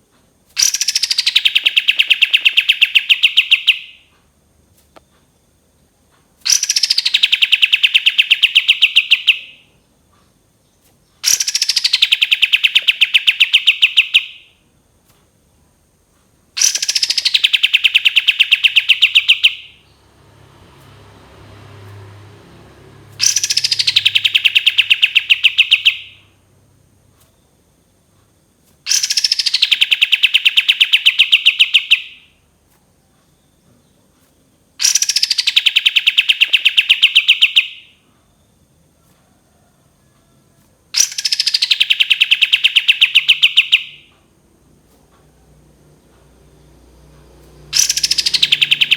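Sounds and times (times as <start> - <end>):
songbird singing trilling phrases: 0.6 - 4.1, 6.5 - 14.6, 16.6 - 20.2, 23.1 - 26.4, 28.9 - 32.3, 34.8 - 38.5, 41.0 - 44.2, 47.6 - 48.9.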